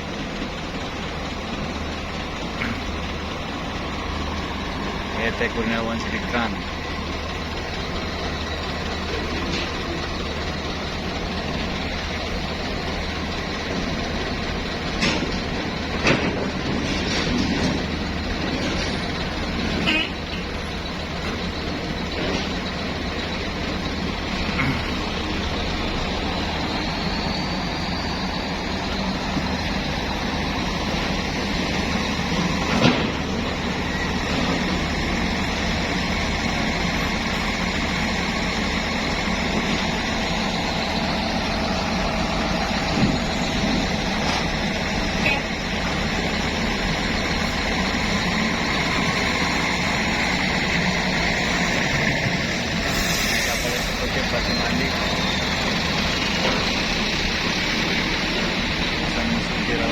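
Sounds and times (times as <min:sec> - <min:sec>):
heavy vehicle engine running: 0:00.0 - 0:59.9.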